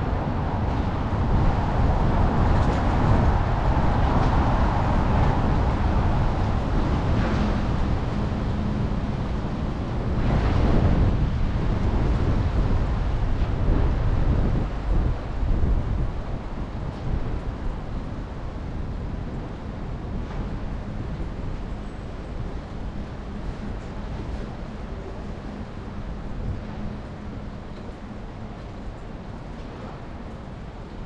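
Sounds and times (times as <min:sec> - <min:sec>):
city traffic: 0:00.0 - 0:31.0
wind rumbling on microphone: 0:00.0 - 0:31.0.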